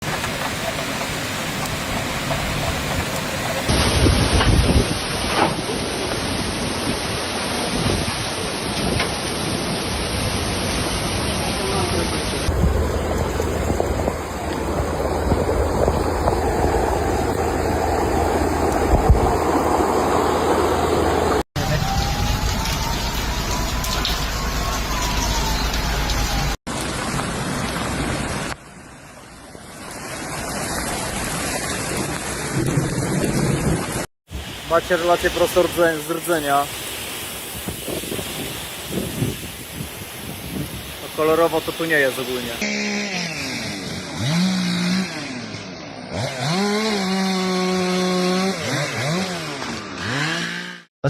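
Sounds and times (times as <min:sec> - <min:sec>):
heavy rain pouring: 0:00.0 - 0:42.6
chainsaw engine revving: 0:42.6 - 0:50.9.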